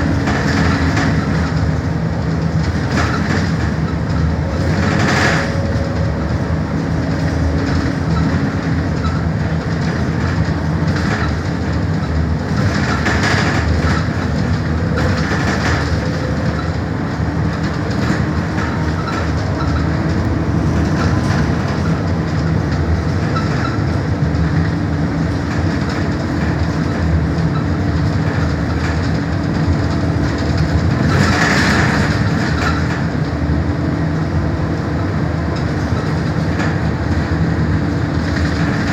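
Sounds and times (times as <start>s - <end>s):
bus engine drone: 0.0s - 38.9s.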